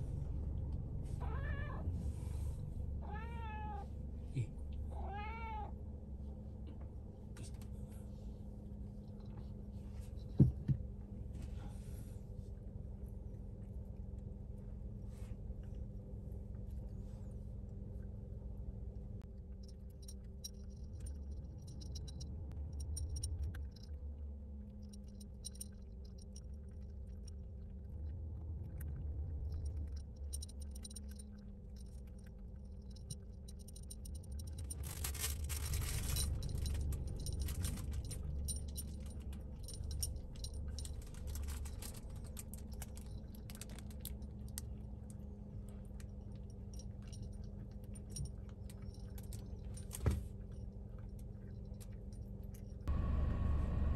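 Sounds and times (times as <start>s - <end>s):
low rumble: 0.0s - 5.0s, 5.7s - 49.9s
cat crunching food: 25.9s - 52.7s.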